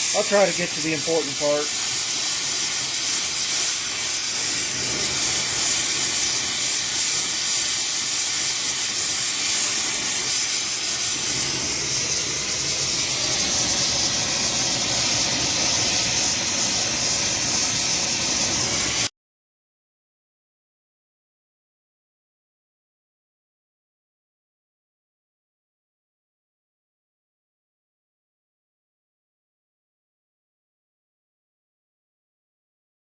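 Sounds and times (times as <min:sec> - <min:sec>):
torch flame hissing: 0:00.0 - 0:19.1.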